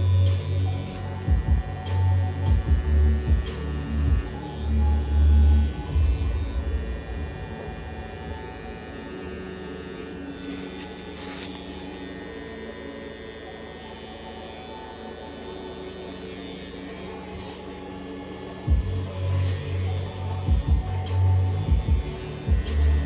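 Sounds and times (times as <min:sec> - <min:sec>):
tattoo machine buzzing: 0:00.0 - 0:23.0.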